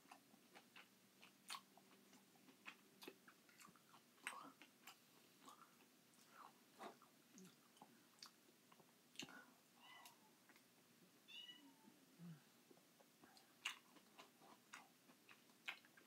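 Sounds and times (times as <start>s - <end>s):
wet chewing and lip smacks: 0.0s - 9.4s, 13.2s - 16.0s.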